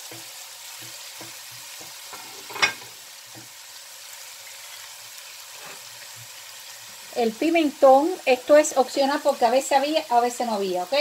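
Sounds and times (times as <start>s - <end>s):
stirring taps: 0.0s - 3.6s
vegetables sizzling in oil: 0.0s - 11.0s.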